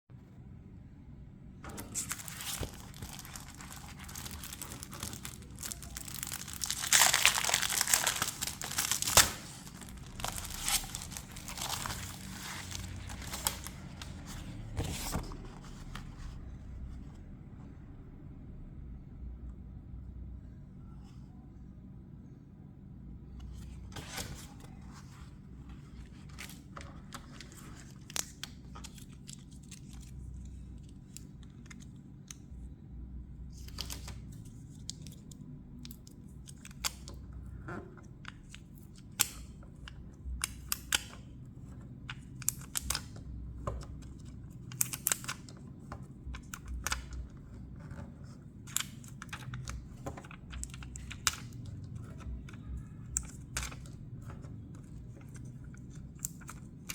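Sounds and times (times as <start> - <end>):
low steady hum: 0.1 - 56.9.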